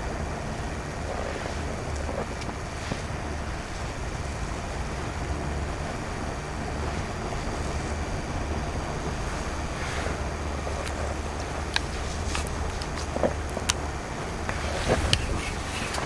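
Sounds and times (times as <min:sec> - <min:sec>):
wind buffeting microphone: 0:00.0 - 0:16.0
faint clicks: 0:06.8 - 0:16.0.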